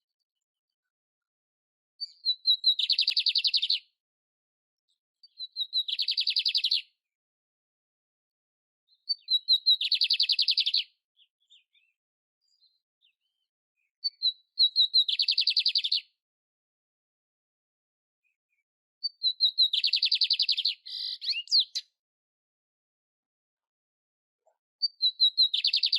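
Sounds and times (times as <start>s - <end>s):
canary singing trills: 2.0s - 3.9s, 5.2s - 6.9s, 8.9s - 16.1s, 19.0s - 22.0s, 24.8s - 25.9s.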